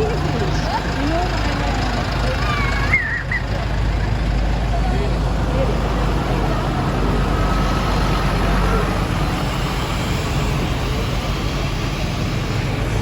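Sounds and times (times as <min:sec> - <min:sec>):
tractor engines running: 0:00.0 - 0:13.0.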